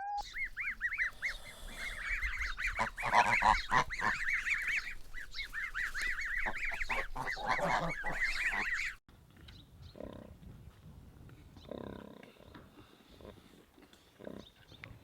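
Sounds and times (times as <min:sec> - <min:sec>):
low animal calls: 0:00.0 - 0:09.0
geese honking: 0:00.1 - 0:09.0.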